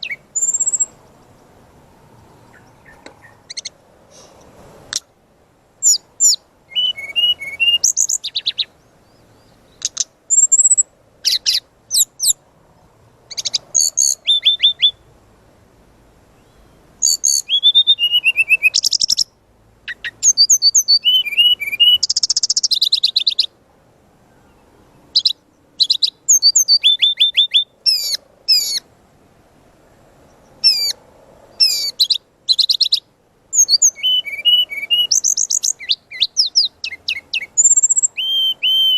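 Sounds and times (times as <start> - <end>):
bird singing whistled trills: 0.0 - 1.0, 5.8 - 12.4, 13.3 - 15.0, 16.4 - 19.3, 19.9 - 23.5, 24.5 - 28.8, 30.6 - 31.0, 31.6 - 38.9.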